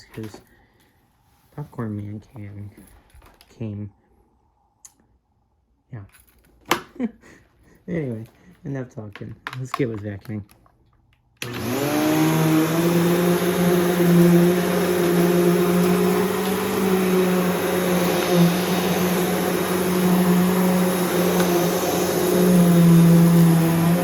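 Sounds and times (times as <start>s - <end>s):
vacuum cleaner running: 11.4s - 24.0s.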